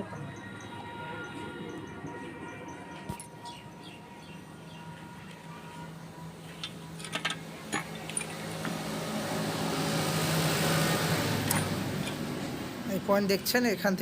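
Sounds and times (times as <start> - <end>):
rushing mechanical noise: 0.0 - 14.0
sharp clicks and knocks: 6.6 - 8.8.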